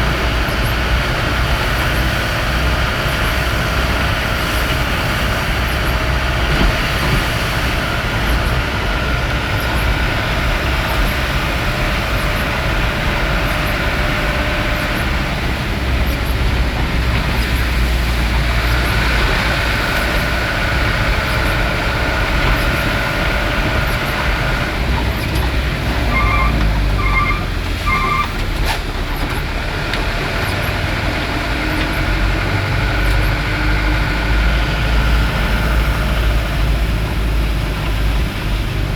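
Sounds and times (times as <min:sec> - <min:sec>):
vehicle engine and road rumble: 0:00.0 - 0:38.9.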